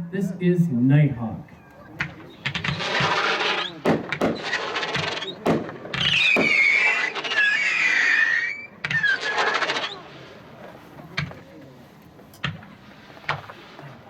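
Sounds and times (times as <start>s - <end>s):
fireworks shots and crackling: 1.8s - 14.0s
fireworks whistles: 2.0s - 11.5s, 12.4s - 14.0s.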